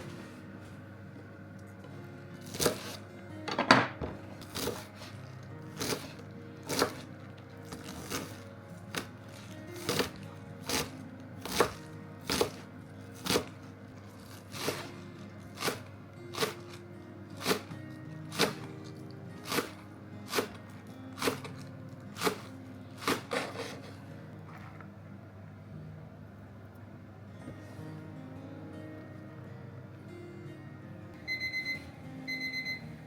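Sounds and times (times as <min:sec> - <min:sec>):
background music: 0:00.0 - 0:33.0
knife chopping on cutting board: 0:02.5 - 0:05.1, 0:05.8 - 0:07.1, 0:09.8 - 0:12.6, 0:13.2 - 0:13.6, 0:14.2 - 0:14.9, 0:15.6 - 0:16.7, 0:17.4 - 0:17.7, 0:18.3 - 0:18.7, 0:19.4 - 0:20.6, 0:21.2 - 0:21.6, 0:22.2 - 0:23.9.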